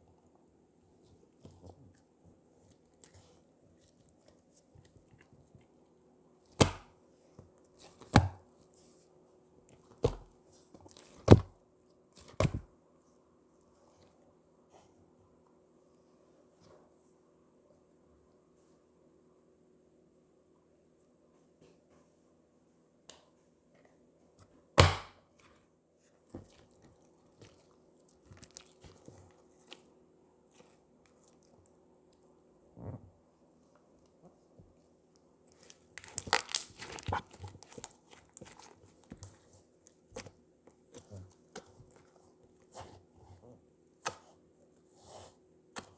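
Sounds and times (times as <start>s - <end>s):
sticky slime crackling: 26.4s - 29.8s, 35.5s - 42.8s
slime popping: 35.8s - 39.3s.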